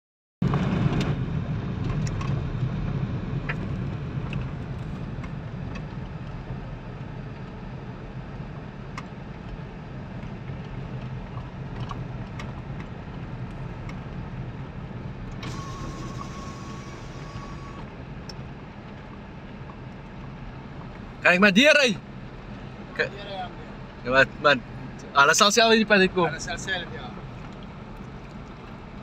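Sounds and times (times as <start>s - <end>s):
vehicle engine running: 0.4s - 29.0s.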